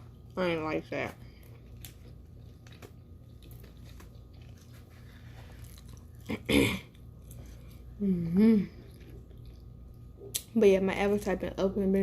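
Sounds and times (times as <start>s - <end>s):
person chewing food: 1.1s - 10.5s.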